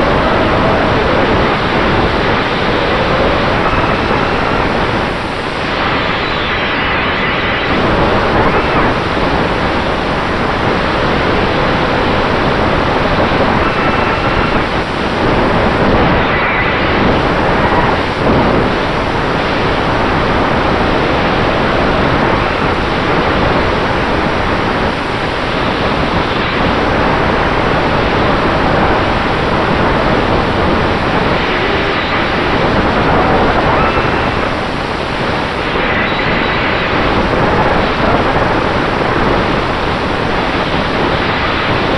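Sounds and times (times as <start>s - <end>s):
rush of air and propeller wash: 0.0s - 41.9s.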